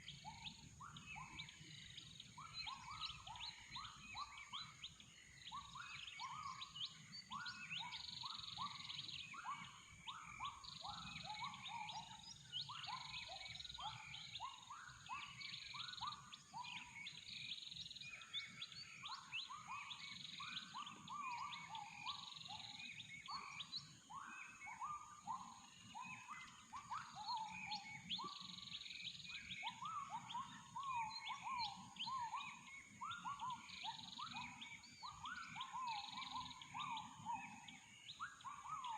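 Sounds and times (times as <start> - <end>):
birds chirping in chorus: 0.0 - 38.9.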